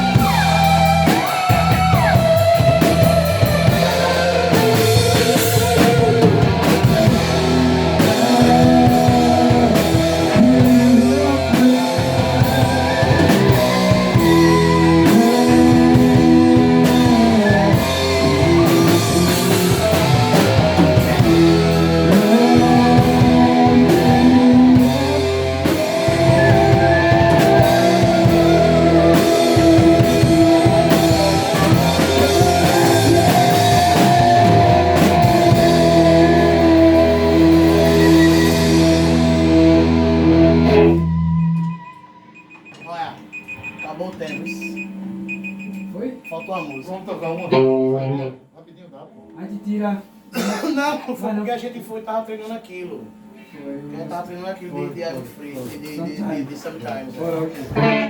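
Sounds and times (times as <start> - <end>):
drum kit beat: 0.0 - 41.8, 57.7 - 58.0
held bass notes: 0.0 - 41.9, 57.7 - 58.0
electric guitar lines: 0.0 - 43.3, 43.9 - 48.4, 57.5 - 58.0.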